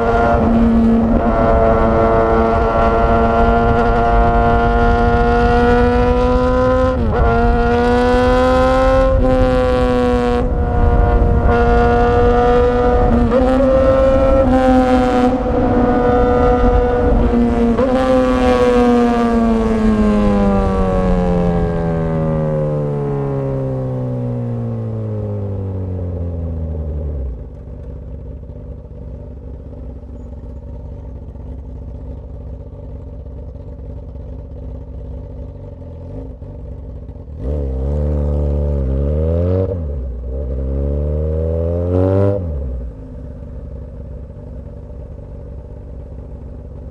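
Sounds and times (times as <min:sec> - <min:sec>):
motorcycle exhaust revving: 0:00.0 - 0:46.9.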